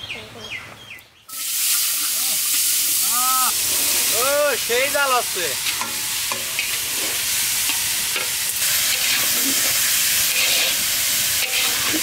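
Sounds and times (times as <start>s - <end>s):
potatoes sizzling in hot oil: 1.3s - 12.0s
metal spatula scraping pan: 5.6s - 12.0s.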